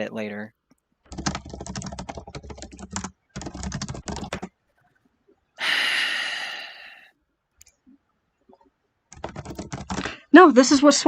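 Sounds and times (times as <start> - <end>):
rapid keyboard typing: 1.1 - 4.5, 9.1 - 10.2
breath blown into microphone: 5.6 - 7.0.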